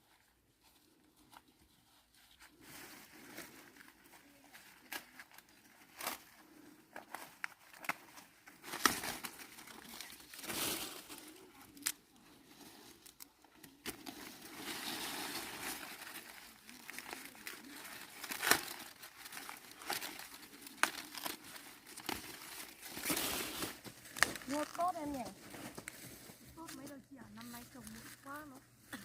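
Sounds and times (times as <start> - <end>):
dry corn leaves rustling: 0.0 - 29.0
corn ears snapping off: 22.9 - 24.8.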